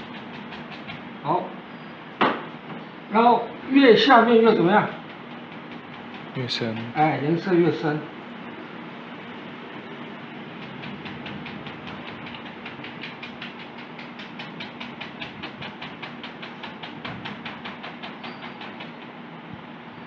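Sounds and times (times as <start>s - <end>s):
paint brush dabbing on canvas: 0.0s - 1.1s, 4.6s - 7.5s, 10.5s - 18.9s
steady low hum: 0.0s - 20.0s.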